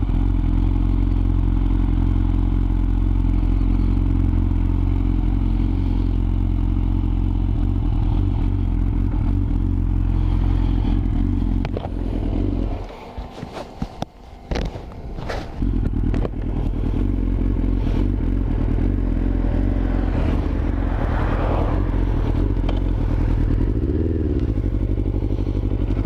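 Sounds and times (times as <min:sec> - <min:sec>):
motorcycle engine misfiring: 0:10.8 - 0:19.0.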